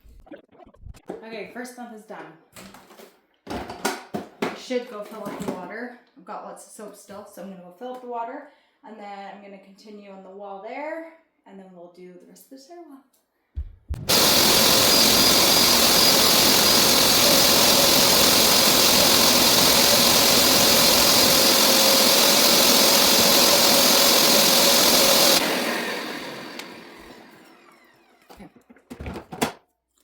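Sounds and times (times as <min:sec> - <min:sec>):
carpet cleaner motor whining: 0:14.1 - 0:28.7.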